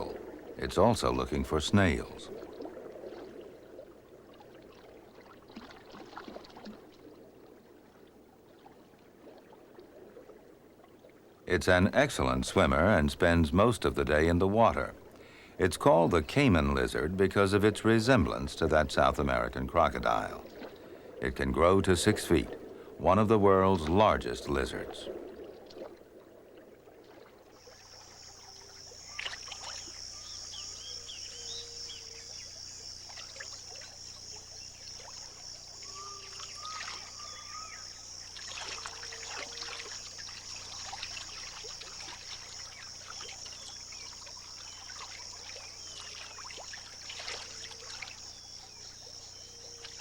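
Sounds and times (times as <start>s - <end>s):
water trickling and splashing: 0.0s - 50.0s
high-pitched insect drone: 27.6s - 50.0s
short chirping calls: 27.6s - 50.0s.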